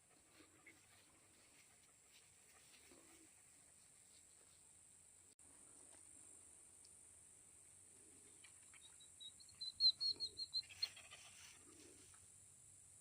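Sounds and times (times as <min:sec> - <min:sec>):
bird chirping: 0:08.2 - 0:11.5.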